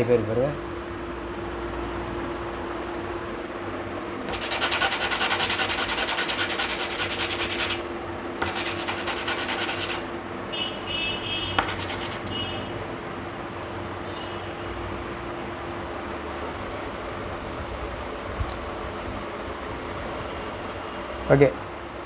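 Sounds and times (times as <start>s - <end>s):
sandpaper scraping metal: 4.3s - 10.1s, 11.6s - 12.3s.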